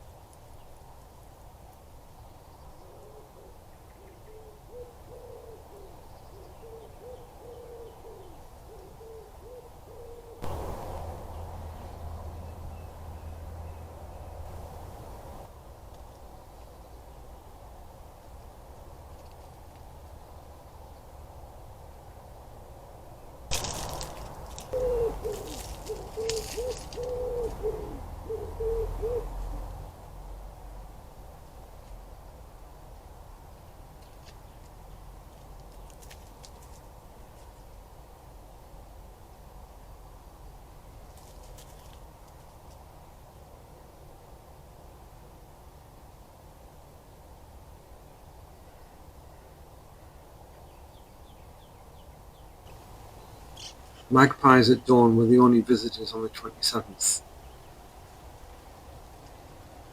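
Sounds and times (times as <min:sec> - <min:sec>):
pigeon cooing: 0:02.8 - 0:11.0, 0:23.6 - 0:29.8
steady low hum: 0:10.4 - 0:15.5
bird calling low notes: 0:23.5 - 0:29.7.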